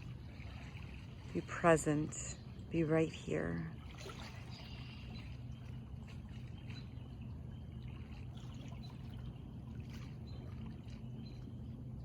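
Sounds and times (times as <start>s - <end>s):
water flowing: 0.0s - 6.5s.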